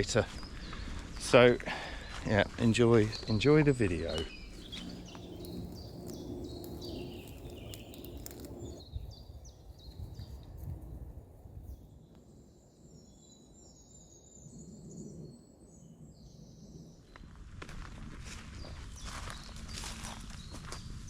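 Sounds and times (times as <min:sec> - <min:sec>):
small birds chirping: 0:00.0 - 0:10.5
thin warbling birdsong: 0:04.2 - 0:10.3
low outdoor rumble: 0:04.5 - 0:08.8.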